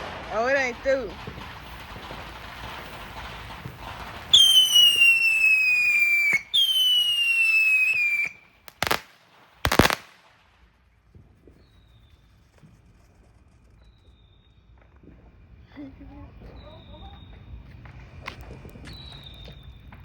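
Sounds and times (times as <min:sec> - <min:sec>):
firework bangs: 0:00.0 - 0:15.3
whistling fireworks: 0:00.0 - 0:20.0.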